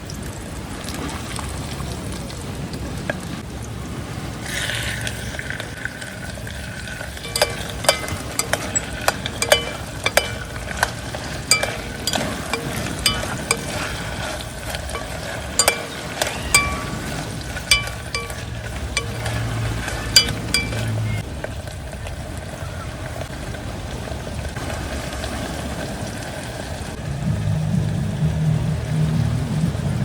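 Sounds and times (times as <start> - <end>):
utensil clinking in a pan: 7.2 - 14.1, 14.9 - 21.0.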